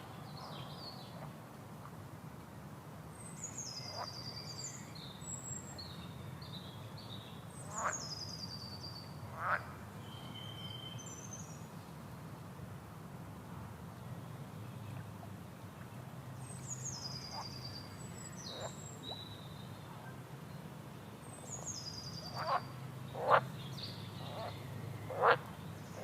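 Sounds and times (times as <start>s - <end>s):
songbirds trilling: 21.2s - 26.0s.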